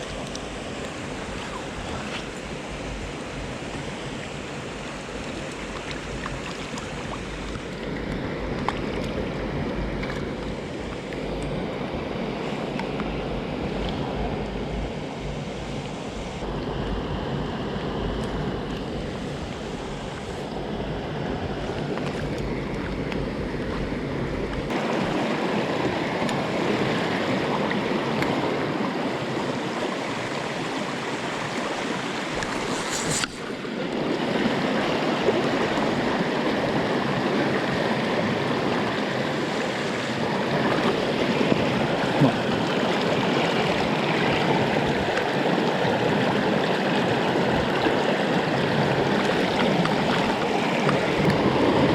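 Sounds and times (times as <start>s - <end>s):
stream water rushing: 0.0s - 51.9s
wind rumble on microphone: 0.0s - 51.9s.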